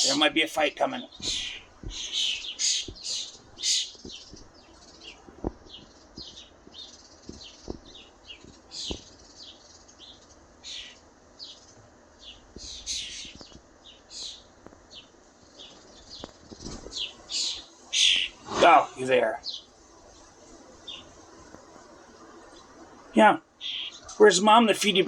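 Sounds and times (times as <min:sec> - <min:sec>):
fledgling birds begging chirps: 0:00.0 - 0:25.0.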